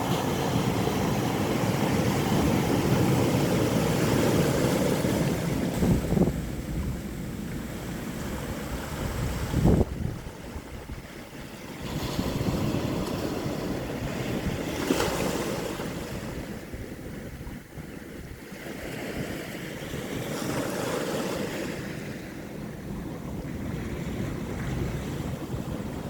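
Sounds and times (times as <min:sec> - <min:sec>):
sea waves washing onto shore: 0:00.0 - 0:26.0
wave crash: 0:04.8 - 0:10.0.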